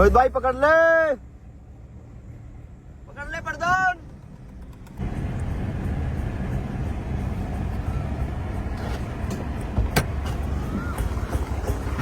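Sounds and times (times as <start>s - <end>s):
low rumble of vehicles: 0.0s - 12.0s.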